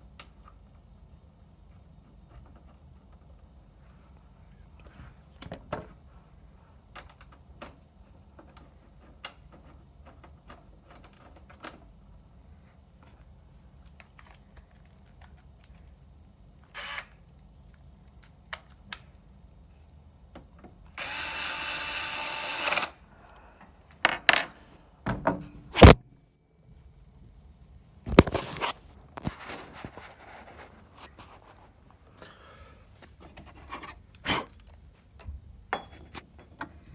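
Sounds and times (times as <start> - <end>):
light clicks and taps of parts: 13.0 - 16.0, 17.3 - 19.1
small power tool motor: 16.8 - 17.1, 21.0 - 23.0.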